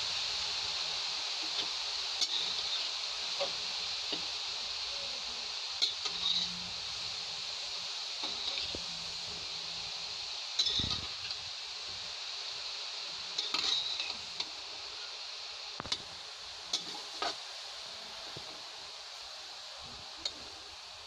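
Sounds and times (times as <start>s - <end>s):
carrots sizzling in a pan: 0.0s - 21.0s
metal spatula scraping pan: 1.6s - 2.9s, 5.8s - 6.6s, 10.6s - 11.2s, 13.4s - 14.2s.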